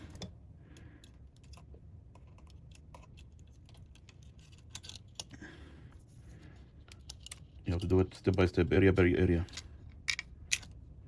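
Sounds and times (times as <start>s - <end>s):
small parts clicking and tapping: 0.0s - 5.4s, 6.6s - 8.6s, 9.4s - 10.8s.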